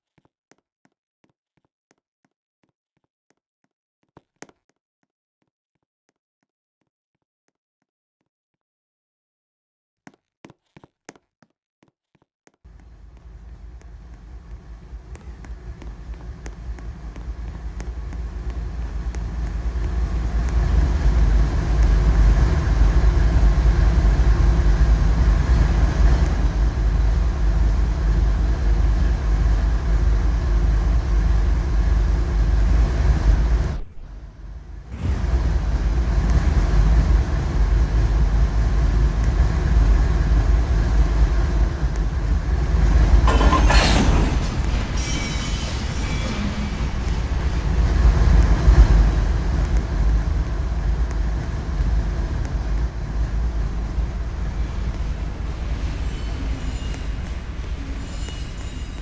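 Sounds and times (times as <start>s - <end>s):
diesel train passing: 12.7s - 59.0s.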